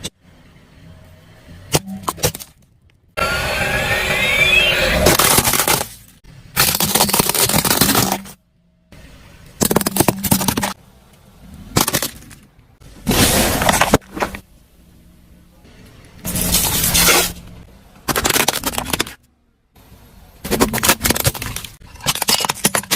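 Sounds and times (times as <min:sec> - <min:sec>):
objects being crushed: 0:05.0 - 0:08.4, 0:09.6 - 0:10.8, 0:11.7 - 0:14.5, 0:16.3 - 0:17.4, 0:18.0 - 0:19.2, 0:20.4 - 0:22.9.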